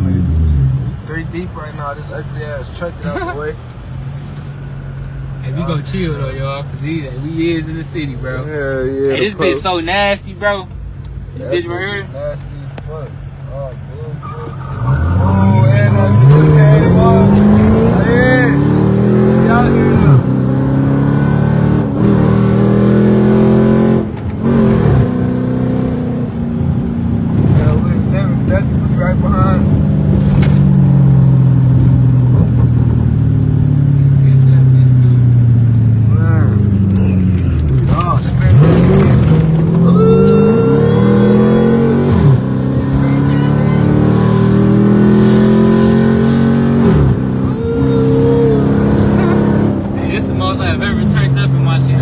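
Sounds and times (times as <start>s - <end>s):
car engine revving hard: 14.6s - 52.0s.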